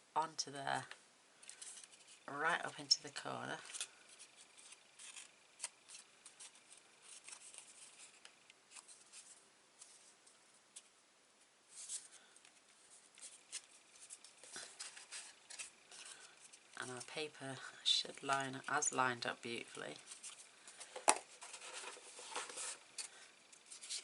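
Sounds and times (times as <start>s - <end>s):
paper rustling and clicking: 19.7s - 24.0s.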